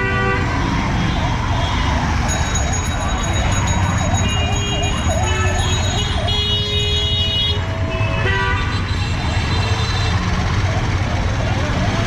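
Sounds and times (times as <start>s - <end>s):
vehicle horns: 0.0s - 1.9s, 4.2s - 10.3s
street traffic rumble: 0.0s - 12.0s
emergency siren warbling: 0.5s - 6.6s, 9.1s - 12.0s.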